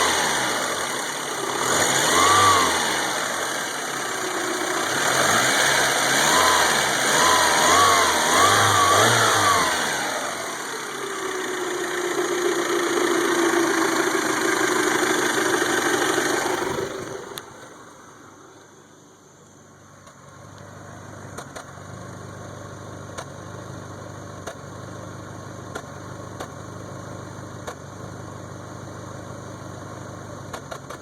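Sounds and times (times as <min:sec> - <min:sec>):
car engine running unevenly: 0:00.0 - 0:19.0.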